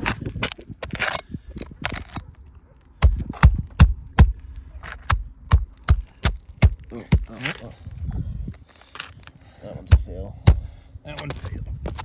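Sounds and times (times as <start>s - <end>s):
heavy low thumps: 9.9s - 10.8s.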